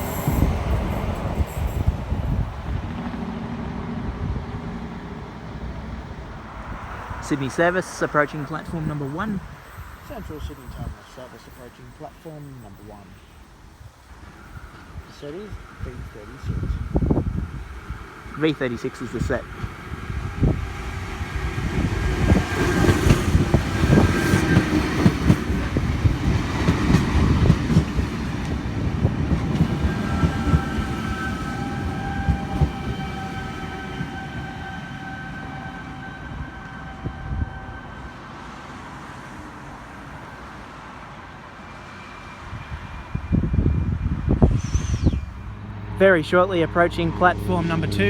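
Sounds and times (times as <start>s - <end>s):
train brakes squealing: 0.0s - 2.4s, 7.4s - 19.4s, 29.5s - 38.8s, 41.4s - 45.8s
train wheels knocking on rail joints: 22.1s - 33.1s.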